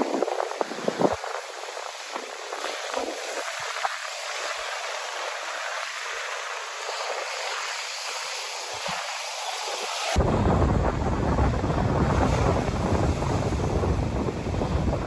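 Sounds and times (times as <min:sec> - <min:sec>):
wind buffeting microphone: 0:00.0 - 0:04.0, 0:10.2 - 0:15.0
ocean surf rushing: 0:00.0 - 0:15.0.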